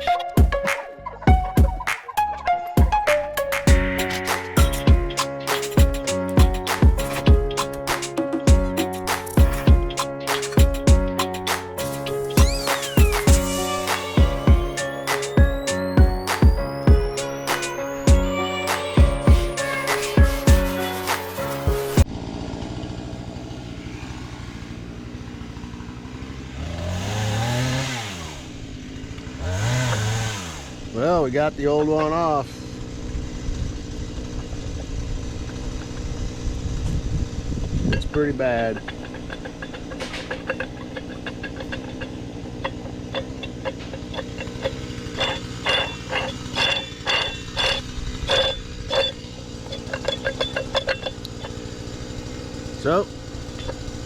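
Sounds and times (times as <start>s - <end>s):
metallic clicks and clanks: 3.6s - 17.8s, 37.9s - 54.0s
chainsaw engine idling and revving: 18.4s - 54.0s.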